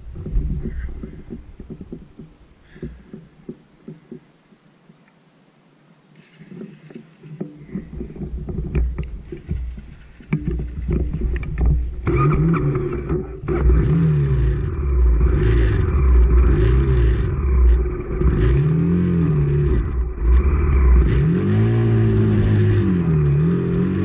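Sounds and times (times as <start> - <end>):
clatter: 7.4 - 24.0
motorcycle engine revving: 10.4 - 24.0.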